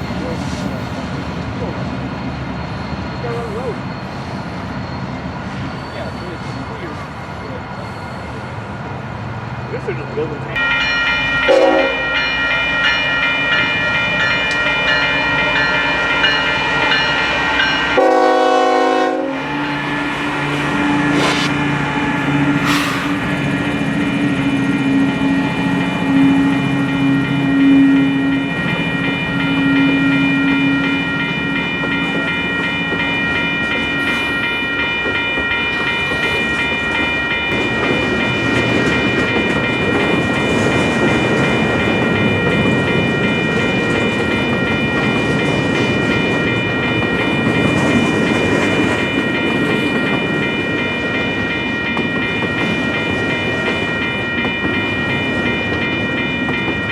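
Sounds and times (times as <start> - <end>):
diesel locomotive engine drone: 0.0 - 56.9
freight train passing: 0.0 - 56.9
train horn blast: 11.5 - 12.0, 18.0 - 19.6.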